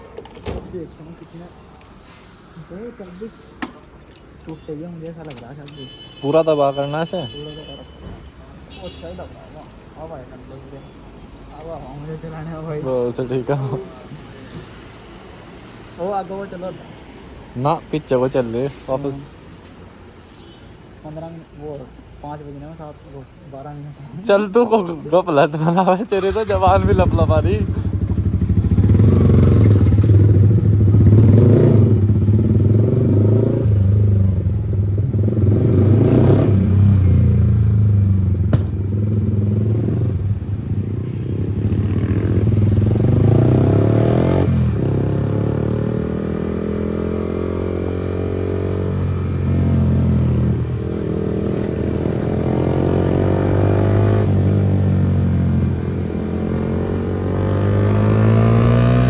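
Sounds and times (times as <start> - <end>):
motorcycle engine revving: 26.2 - 59.0.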